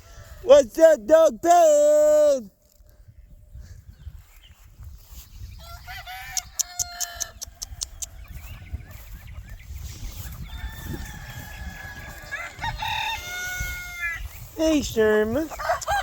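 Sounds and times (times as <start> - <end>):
chickens clucking: 5.1 - 16.0
rooster crowing: 5.6 - 8.0, 10.4 - 14.3, 15.5 - 16.0
sharp clicks: 6.4 - 8.2.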